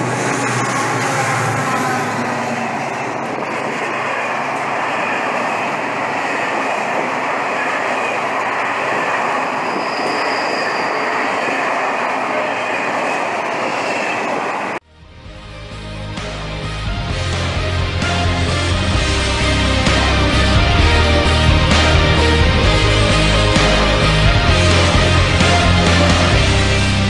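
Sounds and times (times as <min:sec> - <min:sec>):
train wheels rolling on rails: 0:00.0 - 0:14.8.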